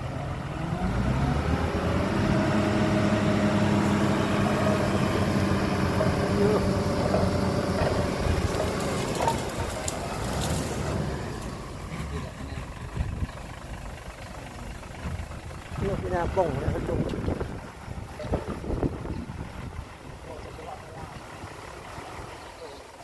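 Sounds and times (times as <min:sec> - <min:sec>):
heavy diesel engine revving: 0:00.0 - 0:23.0
light clatters: 0:06.4 - 0:13.2.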